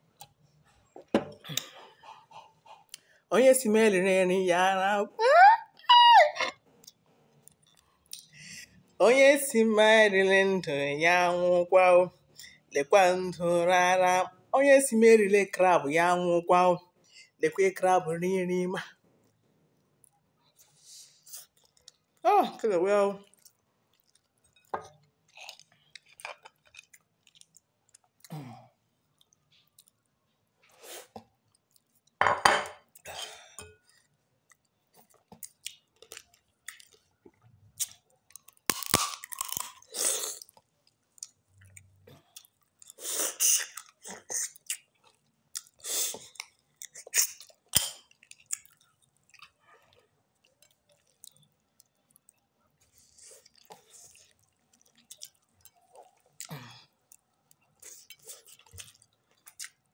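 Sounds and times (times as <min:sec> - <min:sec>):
chewing: 0:06.8 - 0:09.0, 0:19.2 - 0:22.2, 0:23.2 - 0:28.4, 0:29.0 - 0:32.2, 0:32.9 - 0:43.0, 0:43.6 - 0:59.9.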